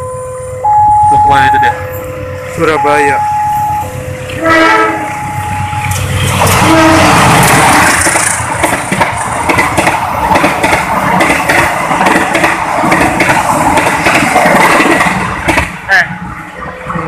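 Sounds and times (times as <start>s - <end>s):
train wheels rushing on rails: 0.0s - 17.0s
rapid clicking and clatter: 7.4s - 15.7s.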